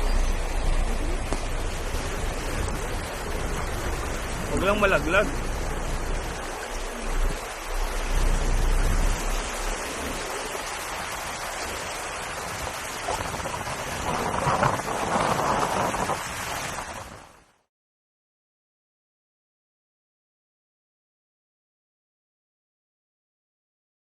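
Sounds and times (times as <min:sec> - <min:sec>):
low rumble: 0:00.0 - 0:17.1
water splashing: 0:00.0 - 0:17.5
heavy rain and floodwater rushing: 0:00.0 - 0:17.7.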